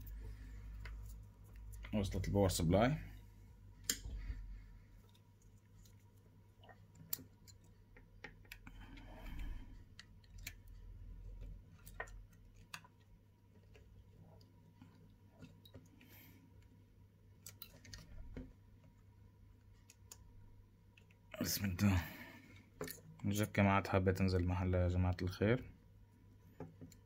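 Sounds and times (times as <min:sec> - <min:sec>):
steady low hum: 0:00.0 - 0:12.4
small tools clicking and tapping: 0:06.6 - 0:09.1, 0:09.8 - 0:15.9.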